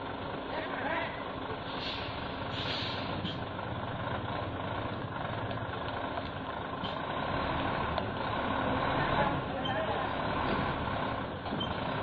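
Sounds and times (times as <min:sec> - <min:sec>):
truck engine running at low revs: 0:00.0 - 0:12.0
short hisses: 0:01.6 - 0:03.4.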